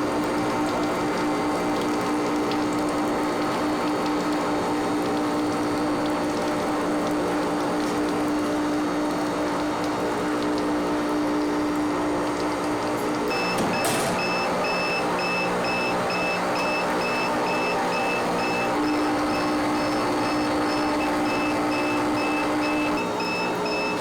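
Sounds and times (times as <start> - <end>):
factory machinery humming: 11.1 - 24.0.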